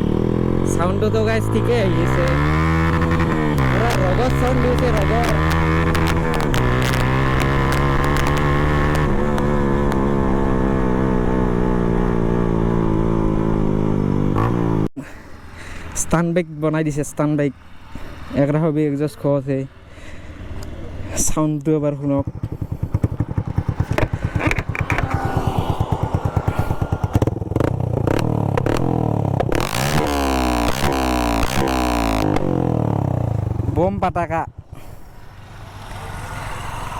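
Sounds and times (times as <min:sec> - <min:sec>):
motorcycle engine idling and revving: 0:00.0 - 0:36.9
motorcycle engine idling: 0:21.8 - 0:29.5.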